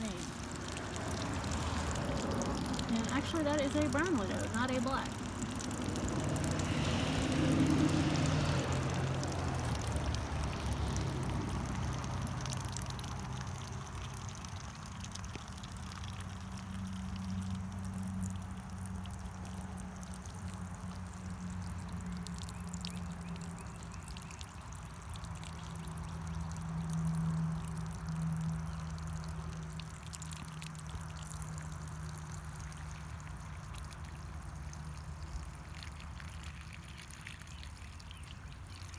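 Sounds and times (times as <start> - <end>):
low steady hum: 0.0 - 6.7
water pouring onto ground: 0.0 - 38.9.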